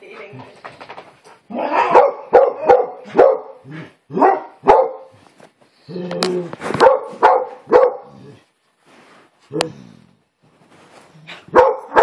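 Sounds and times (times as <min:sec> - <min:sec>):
dogs barking in play: 0:01.3 - 0:05.2, 0:06.7 - 0:08.4, 0:11.2 - 0:12.0
dog bark-growl: 0:01.5 - 0:05.1, 0:06.8 - 0:08.4, 0:11.3 - 0:12.0.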